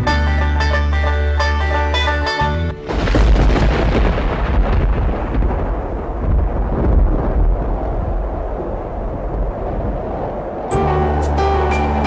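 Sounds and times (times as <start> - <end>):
thunder rumbling: 2.8 - 12.0.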